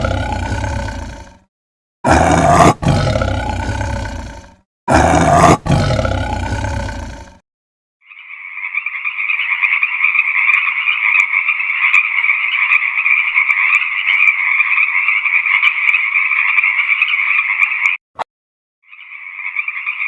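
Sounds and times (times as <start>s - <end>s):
frogs croaking: 8.0s - 18.0s, 18.8s - 20.0s.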